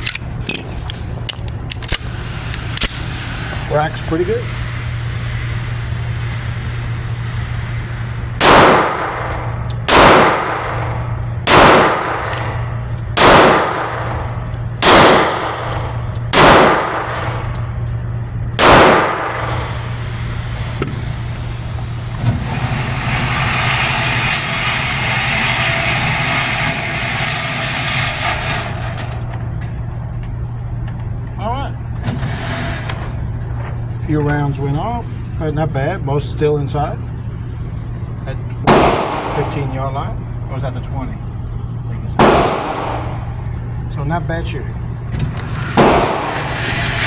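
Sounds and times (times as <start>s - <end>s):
pistol shots ringing: 9.9s - 10.9s, 11.5s - 12.6s, 13.2s - 14.2s, 14.8s - 17.4s, 18.6s - 19.6s, 38.7s - 39.6s, 42.2s - 43.2s.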